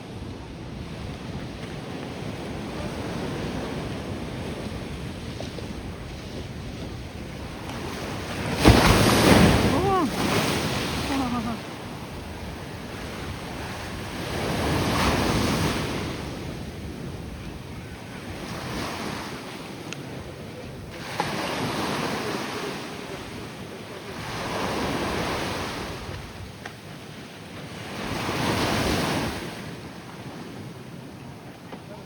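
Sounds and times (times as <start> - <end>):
wind on microphone: 0.0 - 22.1
ocean surf breaking: 0.0 - 26.3, 27.5 - 31.1.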